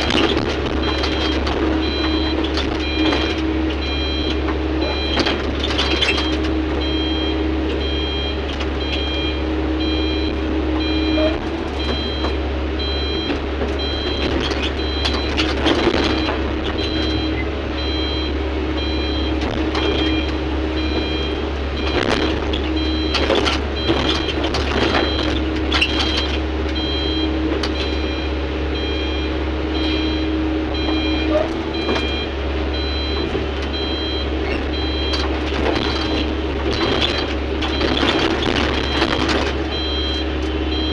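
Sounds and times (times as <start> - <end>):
backup alarm beeping: 0.0 - 40.9
heavy machinery engine running: 0.0 - 40.9.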